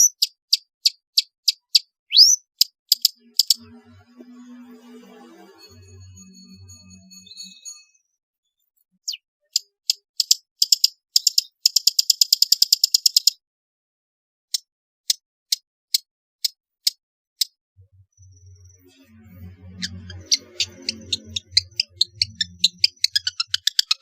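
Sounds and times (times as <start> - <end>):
bird calling with chattering trill: 0.0 - 3.6.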